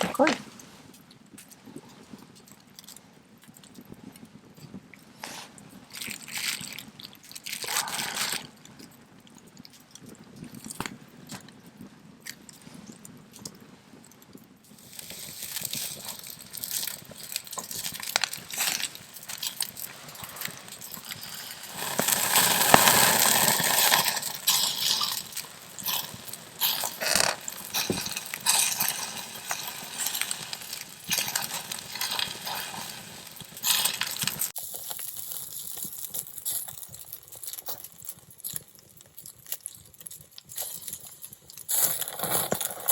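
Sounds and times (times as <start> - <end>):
campfire crackling and popping: 14.6 - 42.9
fire hissing: 14.7 - 34.6.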